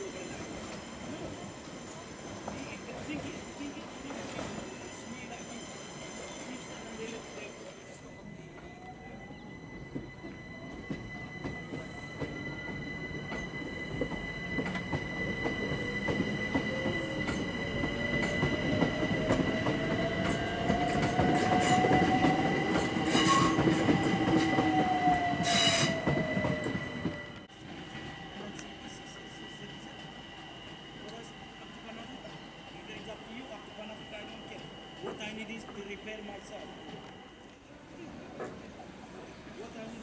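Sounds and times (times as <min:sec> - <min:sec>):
train wheels rumbling on rails: 0:09.5 - 0:37.2.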